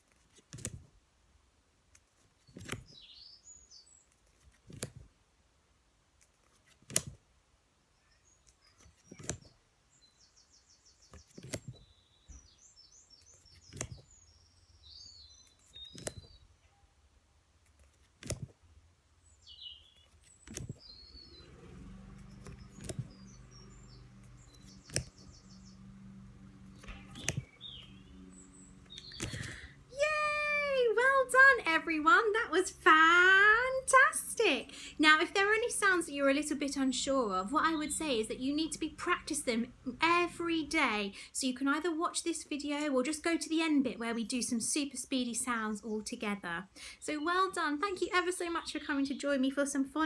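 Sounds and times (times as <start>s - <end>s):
flashcards flipping clicks: 0.0s - 0.9s, 1.8s - 3.0s, 4.1s - 5.1s, 6.2s - 7.3s, 8.4s - 9.6s, 11.1s - 11.9s, 13.2s - 14.2s, 15.3s - 16.4s, 17.6s - 18.6s, 20.0s - 21.2s, 22.0s - 25.4s, 26.1s - 28.0s, 28.6s - 29.7s
birds chirping faintly: 0.0s - 50.0s
low steady hum: 21.0s - 50.0s.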